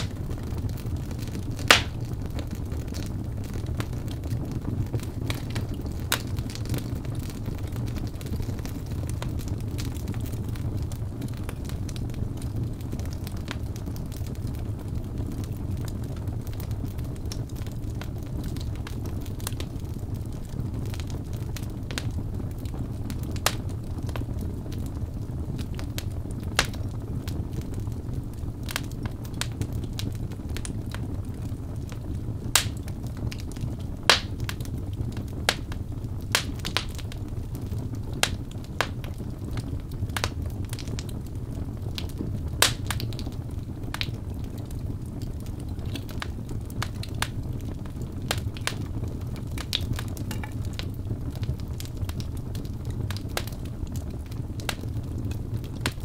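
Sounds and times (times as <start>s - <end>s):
low rumble of flames: 0.0s - 56.0s
wood crackling and popping: 0.0s - 56.0s.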